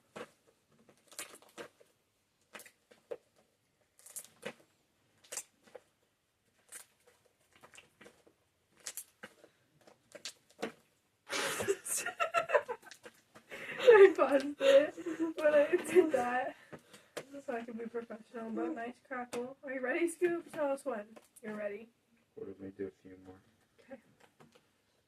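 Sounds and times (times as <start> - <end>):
slime squished by hand: 0.1 - 11.0.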